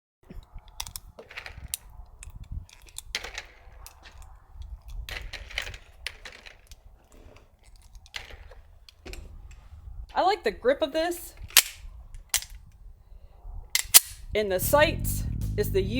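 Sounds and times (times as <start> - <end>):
cartridges clicking into magazine: 11.4 - 12.7, 13.8 - 14.3.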